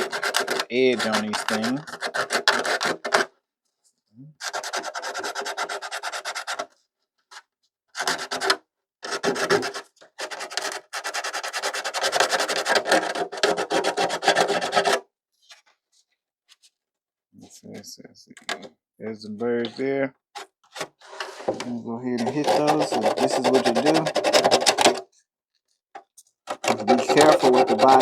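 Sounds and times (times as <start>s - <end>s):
sandpaper scrubbing plastic edge: 0.0s - 3.3s, 4.4s - 6.7s, 8.0s - 15.0s, 20.8s - 25.0s, 26.5s - 28.0s.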